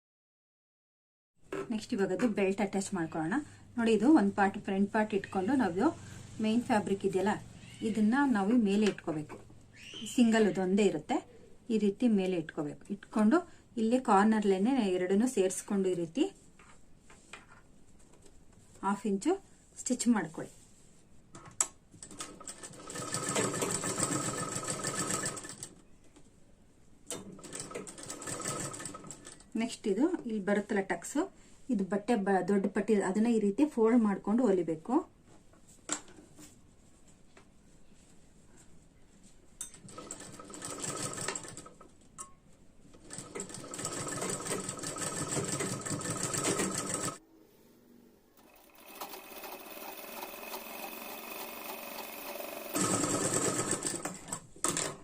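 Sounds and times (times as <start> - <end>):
sewing machine clicks: 21.6 - 25.7, 39.8 - 41.8, 48.4 - 55.0
sewing machine stitching: 22.0 - 25.7, 27.1 - 29.4, 39.8 - 41.8, 43.0 - 47.2, 48.4 - 55.0.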